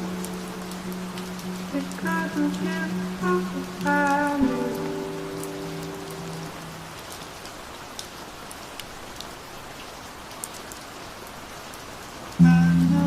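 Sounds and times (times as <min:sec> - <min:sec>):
held song notes: 0:00.0 - 0:06.9, 0:12.4 - 0:13.0
raindrops ticking: 0:00.0 - 0:13.0
steady rain falling: 0:00.0 - 0:13.0.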